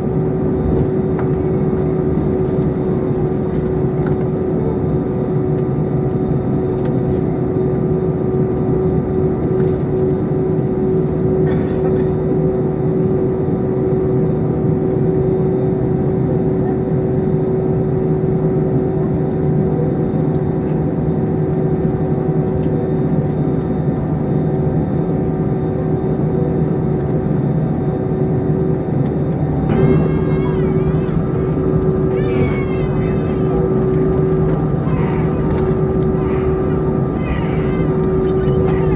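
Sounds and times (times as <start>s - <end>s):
airliner cabin drone: 0.0s - 24.5s, 27.0s - 38.9s
faint passenger chatter: 0.7s - 10.2s, 11.1s - 13.0s, 29.7s - 38.9s.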